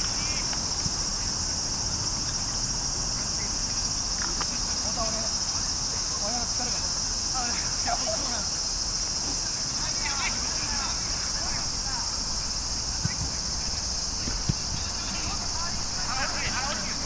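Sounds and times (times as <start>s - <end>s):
insects chirring: 0.0s - 17.0s
distant voices calling out: 9.8s - 17.0s.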